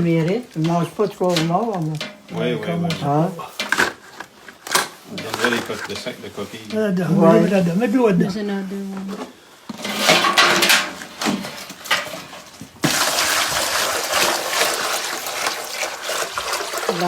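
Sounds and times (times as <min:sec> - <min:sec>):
water gushing: 0:11.7 - 0:17.0
water splashing: 0:12.0 - 0:17.0.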